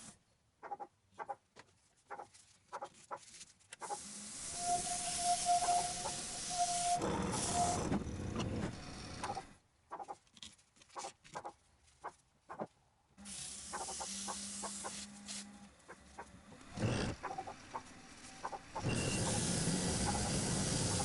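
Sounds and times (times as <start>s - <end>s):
sanding friction hiss: 3.8s - 9.4s, 13.2s - 15.5s, 16.6s - 21.0s
lathe motor hum: 4.4s - 9.5s, 15.7s - 21.0s.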